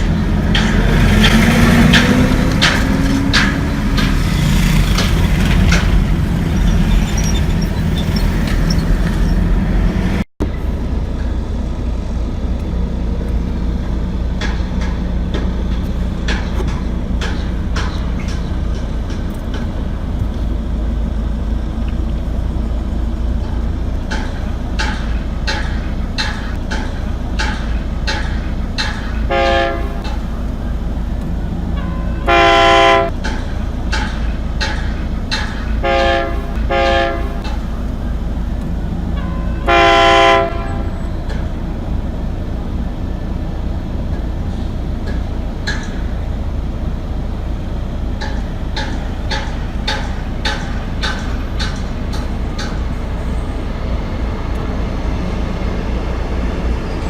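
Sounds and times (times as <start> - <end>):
train rumbling past: 0.0 - 57.0
wheels clacking over rails: 0.0 - 57.0
train horn: 29.3 - 30.1, 32.1 - 33.1, 35.8 - 37.5, 39.5 - 41.1.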